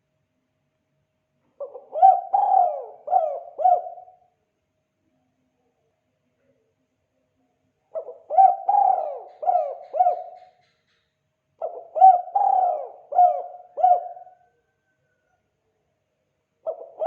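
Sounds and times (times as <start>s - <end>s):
dove cooing: 1.6s - 4.2s, 7.9s - 10.8s, 11.6s - 14.9s, 16.6s - 17.0s.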